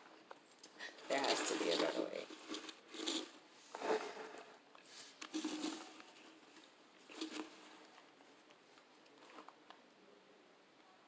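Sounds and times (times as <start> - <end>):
handling rustles: 1.0 - 9.6.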